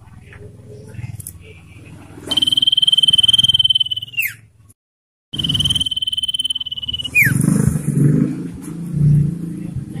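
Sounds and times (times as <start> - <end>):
bird pulsed trill: 2.3 - 4.4, 5.4 - 7.4.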